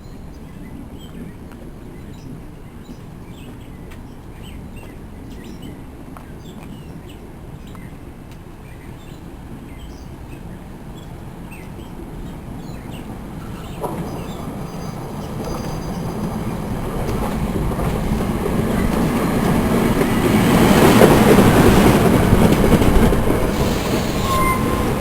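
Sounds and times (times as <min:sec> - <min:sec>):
train approaching: 0:00.0 - 0:25.0
small birds chirping: 0:00.2 - 0:08.0, 0:08.6 - 0:19.8
steady low rumble: 0:16.0 - 0:23.9.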